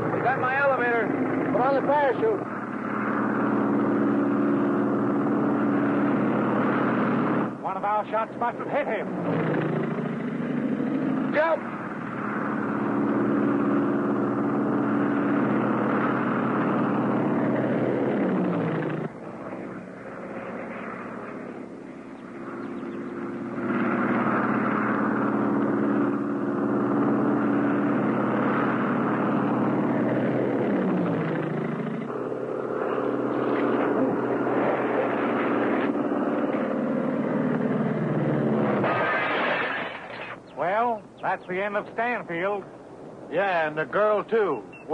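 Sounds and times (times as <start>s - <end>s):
propeller aircraft engine droning: 0.0s - 44.9s.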